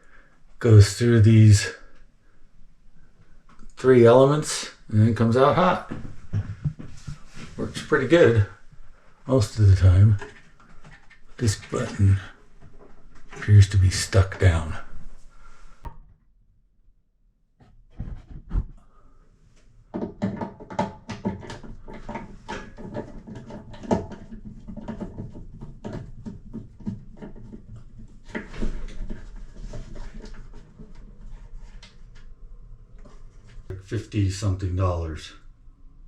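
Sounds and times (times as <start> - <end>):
clicks and light knocks: 9.6 - 12.0.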